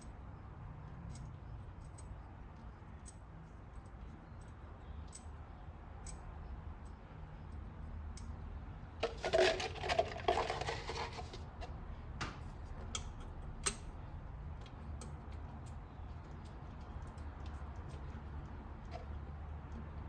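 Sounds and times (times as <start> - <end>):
metal parts clinking and rattling: 9.0 - 11.6.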